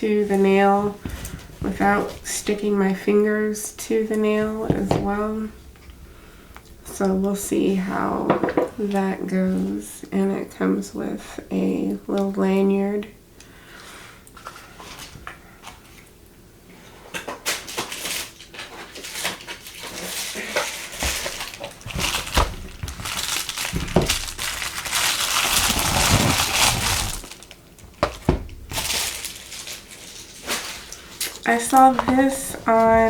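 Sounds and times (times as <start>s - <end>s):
packaging crinkling: 17.3s - 33.0s.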